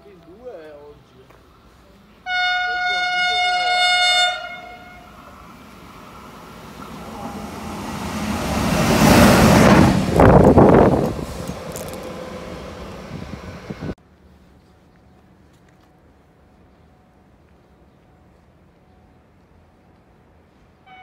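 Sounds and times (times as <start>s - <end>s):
train passing at speed: 1.5s - 14.0s.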